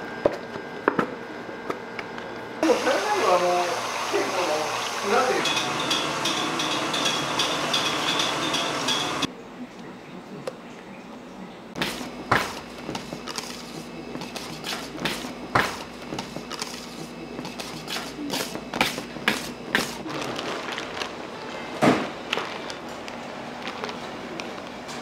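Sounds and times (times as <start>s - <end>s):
steady machine hum: 0.0s - 9.7s
utensils and trays clinking: 5.0s - 9.3s.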